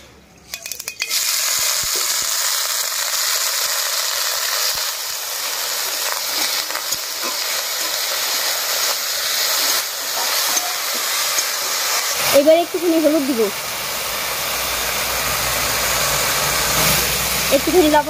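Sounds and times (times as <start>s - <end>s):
potato sizzling in hot oil: 0.7s - 18.0s.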